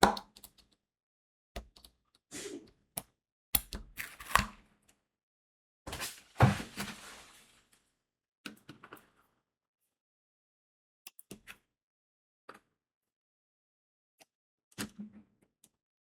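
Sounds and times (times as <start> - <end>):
rustling: 6.0 - 7.6.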